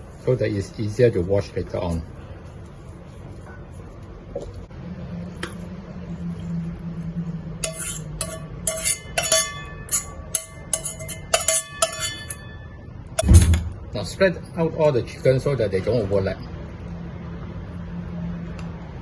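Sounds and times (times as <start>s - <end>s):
utensil clinking on ceramic plate: 7.6s - 12.7s.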